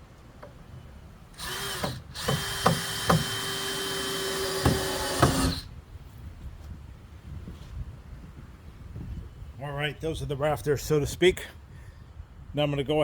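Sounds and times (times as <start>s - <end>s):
power drill driving screws: 1.3s - 5.7s.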